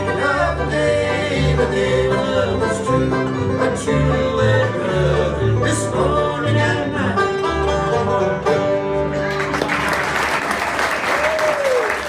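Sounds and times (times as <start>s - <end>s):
walking bass line: 0.0s - 9.5s
banjos picking: 0.0s - 9.6s
fiddle: 0.0s - 9.7s
guitar: 0.0s - 10.6s.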